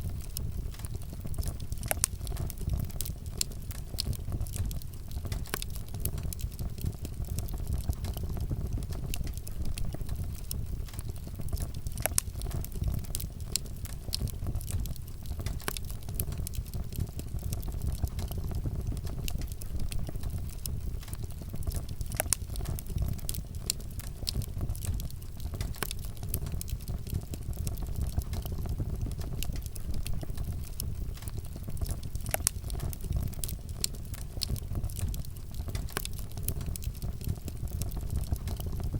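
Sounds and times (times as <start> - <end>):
fire low rumble: 0.0 - 38.9
wood fire crackling and popping: 0.0 - 38.9.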